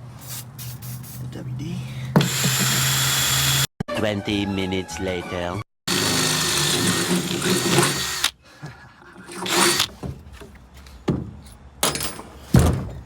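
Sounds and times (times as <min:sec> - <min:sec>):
power drill running: 0:02.2 - 0:03.7, 0:05.9 - 0:08.4, 0:09.3 - 0:09.9
knocks and handling noises: 0:09.4 - 0:13.0.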